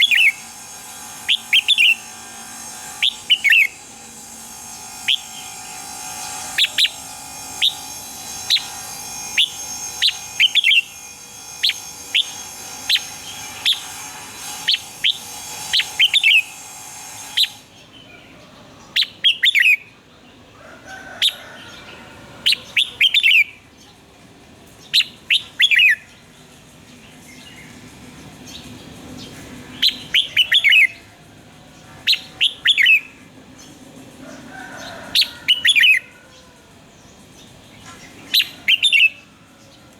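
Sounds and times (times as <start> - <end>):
bird singing whistled notes: 0.0 - 16.6, 18.9 - 19.9, 22.5 - 23.6, 24.8 - 31.1, 32.0 - 33.8, 35.2 - 36.2, 37.1 - 39.8
steady hum and hiss: 0.0 - 39.9.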